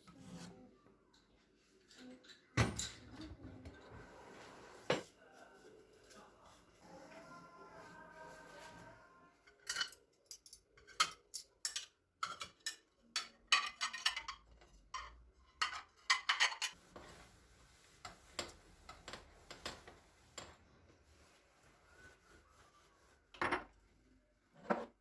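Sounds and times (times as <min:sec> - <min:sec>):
kitchenware clinking and knocking: 0:09.5 - 0:16.8, 0:23.3 - 0:23.8, 0:24.6 - 0:25.0.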